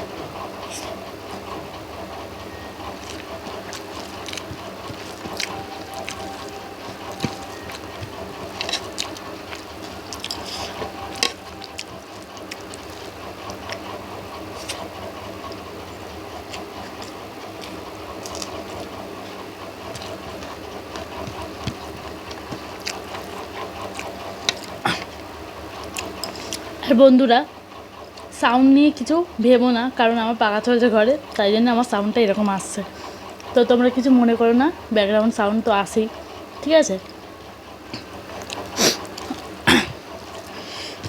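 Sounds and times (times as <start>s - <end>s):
electric fan humming: 0.0s - 41.0s
person eating and chewing: 0.4s - 26.8s, 37.8s - 41.0s.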